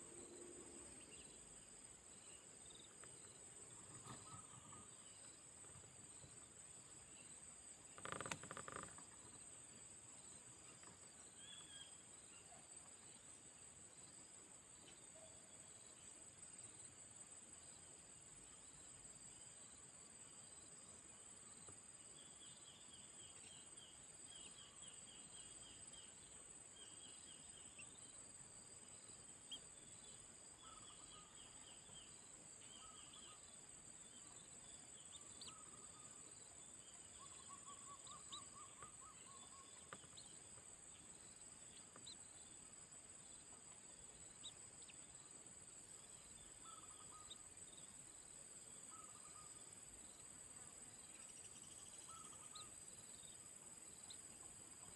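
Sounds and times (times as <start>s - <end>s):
insects buzzing: 0.0s - 11.9s
bird chirps: 2.2s - 5.4s, 29.5s - 41.0s, 46.2s - 47.8s, 48.9s - 49.6s, 51.1s - 53.4s.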